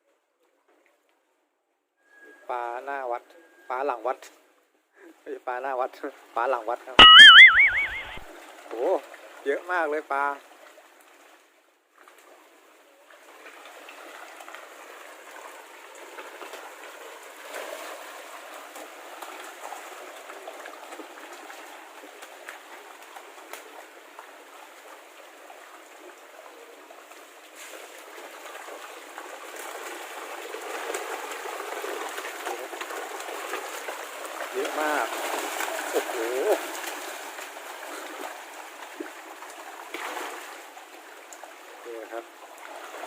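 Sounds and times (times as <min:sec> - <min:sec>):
water churning and splashing: 0:13.2 - 0:43.0.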